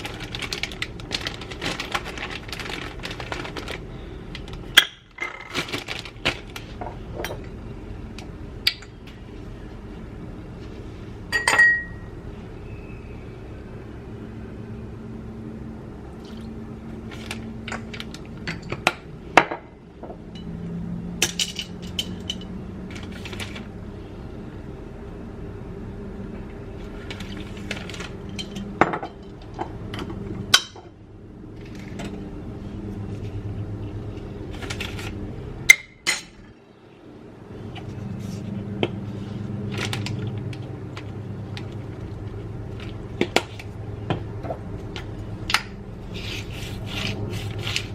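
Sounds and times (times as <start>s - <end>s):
steady low hum: 0.0s - 47.9s
dishes and utensils clinking: 11.3s - 12.0s.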